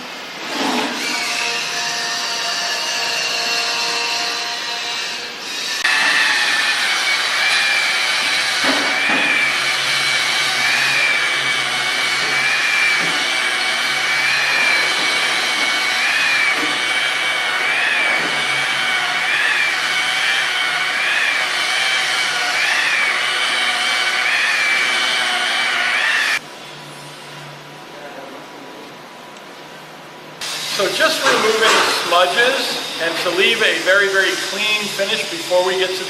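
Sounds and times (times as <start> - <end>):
electric polisher whining: 4.5 - 26.4.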